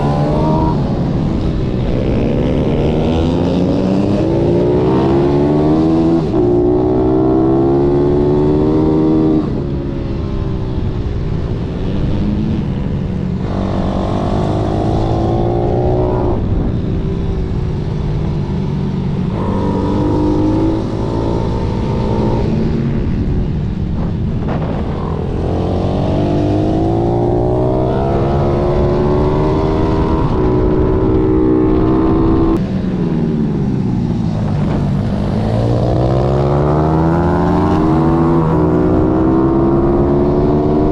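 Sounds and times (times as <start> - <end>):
motorbike engine revving: 18.9 - 32.6.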